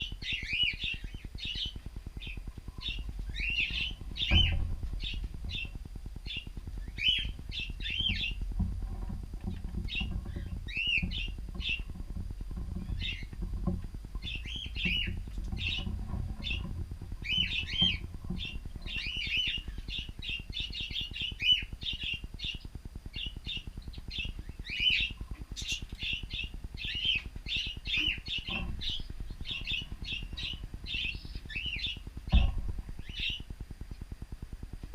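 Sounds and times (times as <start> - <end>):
cockatiels chirping: 0.0 - 8.4, 14.2 - 32.4
low rumble: 0.0 - 21.5, 23.8 - 34.9
knock: 3.7 - 5.8, 32.3 - 32.8.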